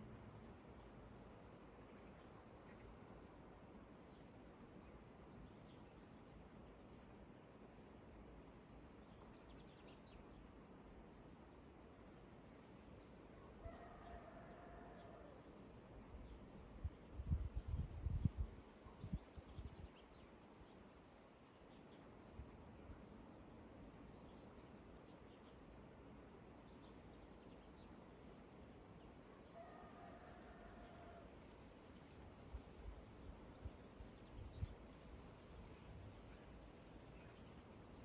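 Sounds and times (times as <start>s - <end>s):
insects chirring: 0.0s - 38.0s.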